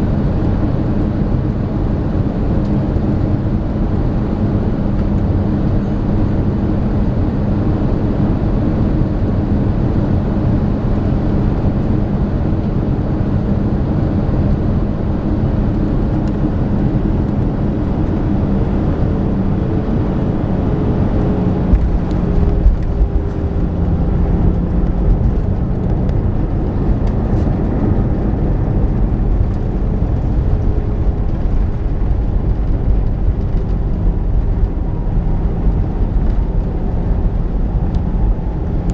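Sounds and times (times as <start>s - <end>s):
jet cabin engine rush: 0.0s - 38.9s.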